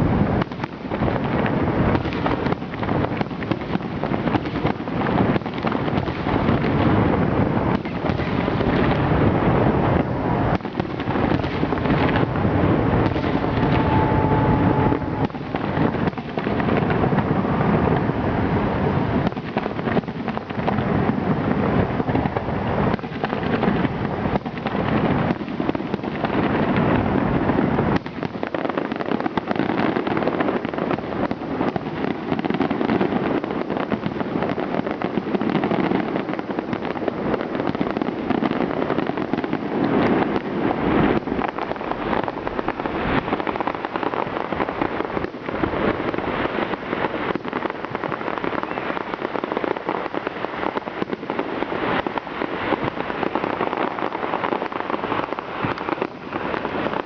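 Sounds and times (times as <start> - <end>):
fireworks bangs and crackling: 0.0 - 57.0
deep rumble: 6.3 - 19.2.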